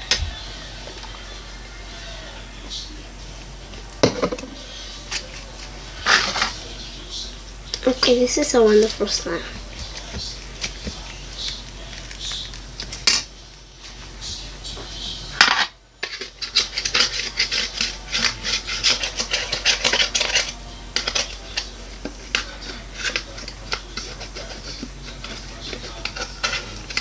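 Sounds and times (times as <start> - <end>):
utensil scraping a bowl: 4.2 - 7.2, 16.0 - 27.0.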